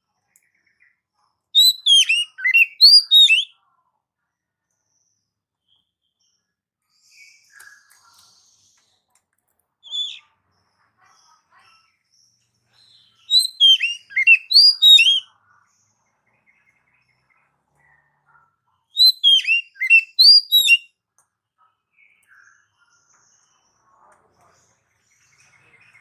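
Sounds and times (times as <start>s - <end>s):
bird singing whistled notes: 1.6s - 3.5s, 9.9s - 10.2s, 12.9s - 15.3s, 19.0s - 20.9s.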